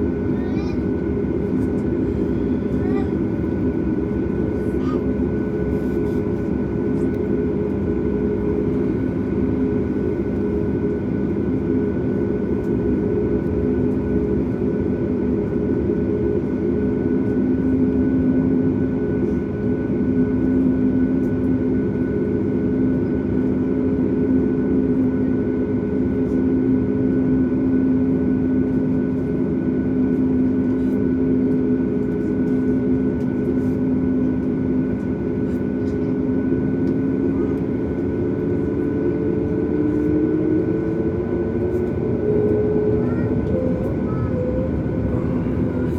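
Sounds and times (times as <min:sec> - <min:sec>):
aircraft cabin engine hum: 0:00.0 - 0:45.9.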